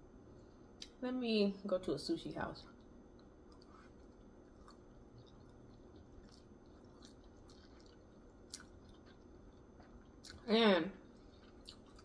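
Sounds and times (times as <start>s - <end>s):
low room hum: 0.0s - 12.0s
faint chewing: 2.7s - 12.0s.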